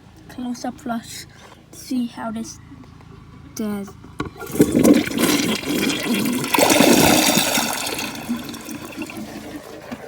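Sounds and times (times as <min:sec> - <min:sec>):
toilet flushing: 0:04.4 - 0:10.0.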